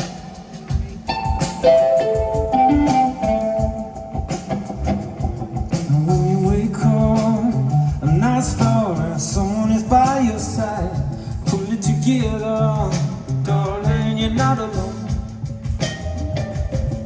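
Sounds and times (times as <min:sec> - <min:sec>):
bass line: 0:00.0 - 0:17.0
plucked strings: 0:01.1 - 0:06.2.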